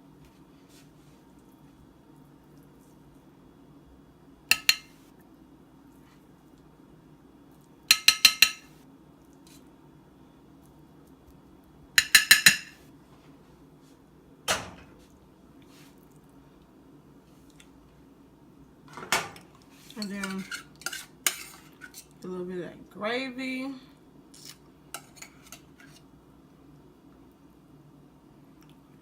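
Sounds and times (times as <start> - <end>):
metal spoon clinking on cookware: 4.5 - 4.9, 7.9 - 8.7, 12.0 - 12.8, 20.0 - 22.0.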